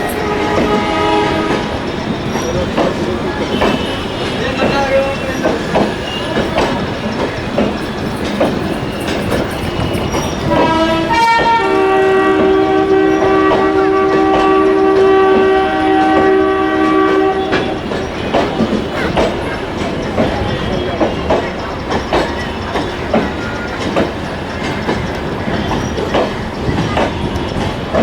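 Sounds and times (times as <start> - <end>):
two-tone locomotive horn: 0.0 - 2.2, 3.4 - 6.8, 9.0 - 19.3
train coaches clicking over rail joints: 0.0 - 28.0.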